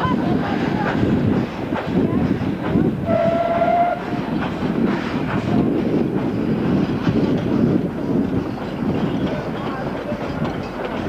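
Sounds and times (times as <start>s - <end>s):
train coaches rumbling past: 0.0s - 11.0s
wheels clacking over rail joints: 3.7s - 11.0s.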